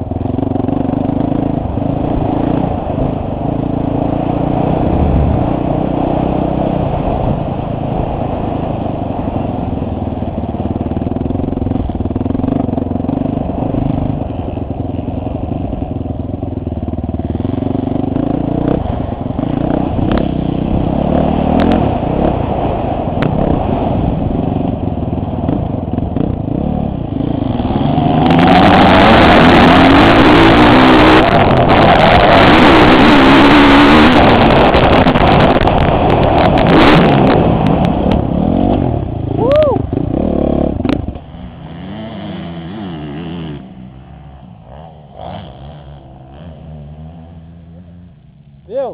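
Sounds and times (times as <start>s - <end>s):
motocross bike engine revving: 10.7s - 48.9s.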